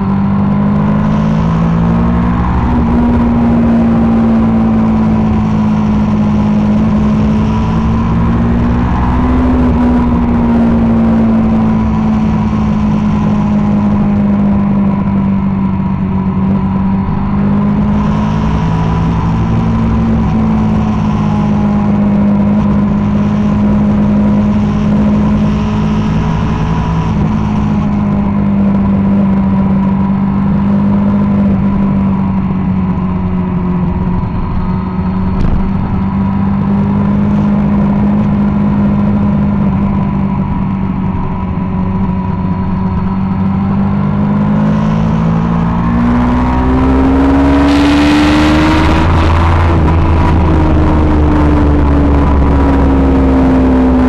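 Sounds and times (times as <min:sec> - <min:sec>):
motorcycle engine at speed: 0:00.0 - 0:54.0
wind rush: 0:00.0 - 0:54.0.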